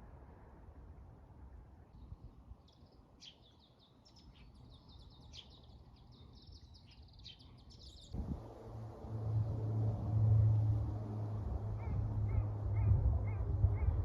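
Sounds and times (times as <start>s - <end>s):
small birds chirping: 2.0s - 8.2s, 11.8s - 14.0s
low steady hum: 8.2s - 14.0s.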